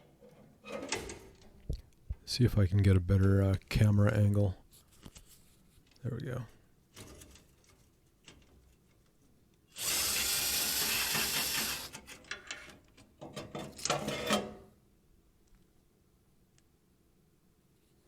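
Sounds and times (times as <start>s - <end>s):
cordless drill running: 9.8s - 12.0s.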